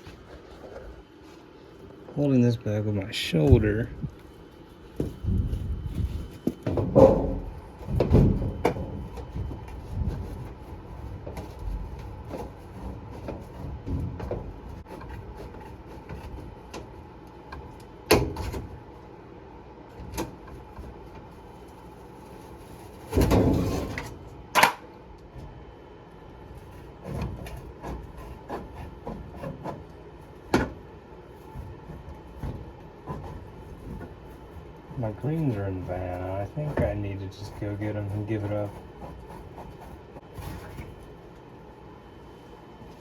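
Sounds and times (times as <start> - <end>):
sheet metal knocks and clunks: 6.6 - 9.0
scraping clunk: 23.0 - 24.8.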